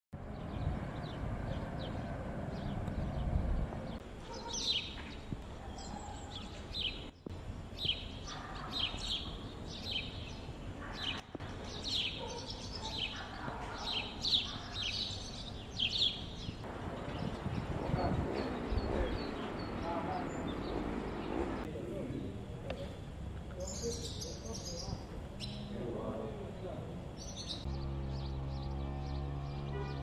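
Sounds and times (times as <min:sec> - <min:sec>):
songbirds chirping and twittering: 0:00.2 - 0:30.0
low outdoor rumble: 0:16.6 - 0:23.7.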